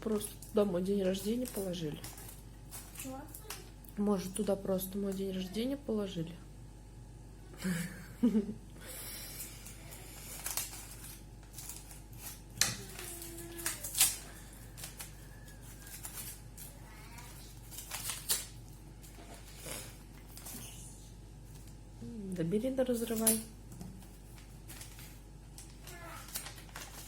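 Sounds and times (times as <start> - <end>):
paper and plastic wrapping crinkling: 0.0 - 5.2, 9.4 - 21.8, 23.0 - 27.0.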